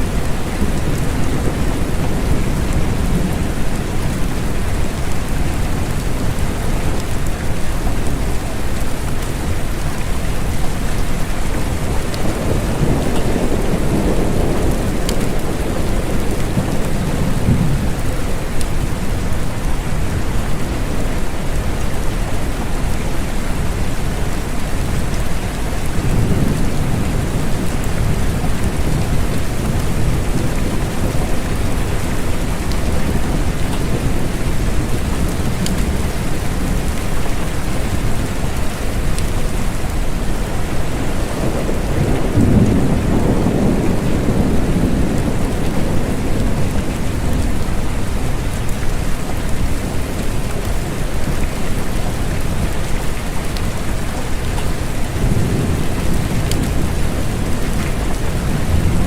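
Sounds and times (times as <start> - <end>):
steady rain falling: 0.0 - 59.0
low thunder rumbling: 10.4 - 21.7, 25.4 - 39.3, 39.9 - 51.2, 54.8 - 59.0.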